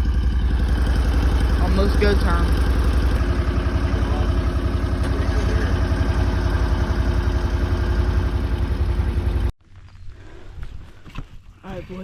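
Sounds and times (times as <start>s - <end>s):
vehicle engine running: 0.0s - 9.6s.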